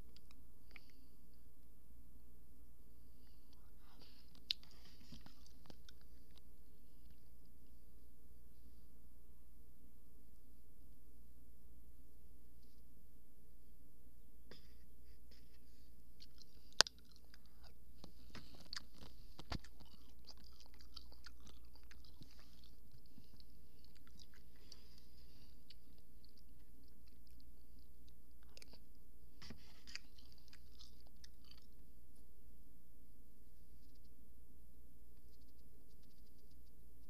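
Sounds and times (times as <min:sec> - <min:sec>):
wet crunchy chewing: 0:16.2 - 0:28.8, 0:29.4 - 0:31.8.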